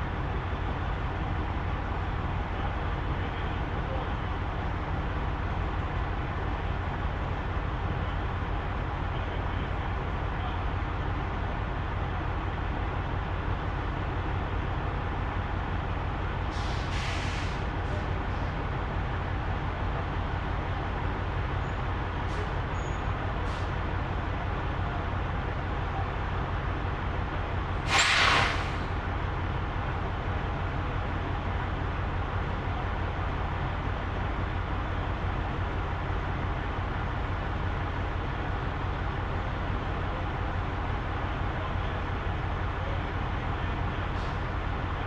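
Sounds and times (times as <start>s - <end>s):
truck engine and road drone: 0.0s - 45.0s
air brake hiss: 16.5s - 17.7s, 23.5s - 23.8s, 27.8s - 28.9s.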